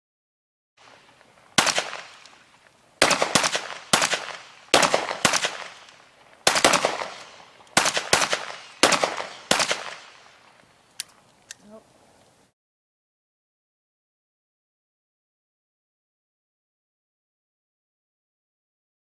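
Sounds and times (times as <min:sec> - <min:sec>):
echoing gunshots: 0:00.8 - 0:10.6.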